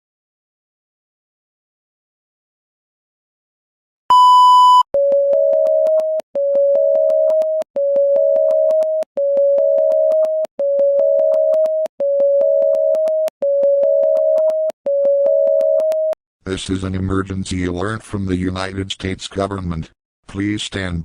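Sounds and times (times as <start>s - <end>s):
alarm tone beeping: 4.1s - 16.2s.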